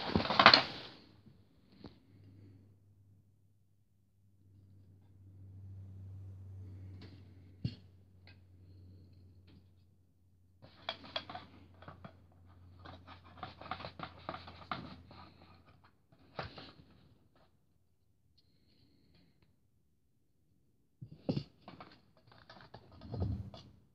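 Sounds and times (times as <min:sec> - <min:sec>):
hands handling packaging: 0:00.0 - 0:00.9.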